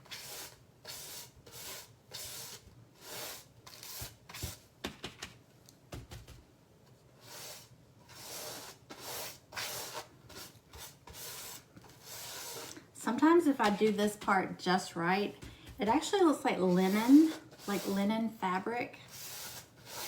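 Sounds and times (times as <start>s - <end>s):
stiff paintbrush scratching: 7.2s - 12.9s, 15.8s - 18.1s, 19.0s - 20.0s.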